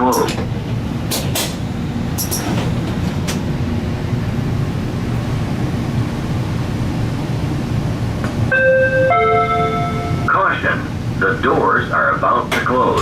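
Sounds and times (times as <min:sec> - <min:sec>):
railcar interior rumble: 0:00.0 - 0:13.0
door-closing chime: 0:08.6 - 0:10.3.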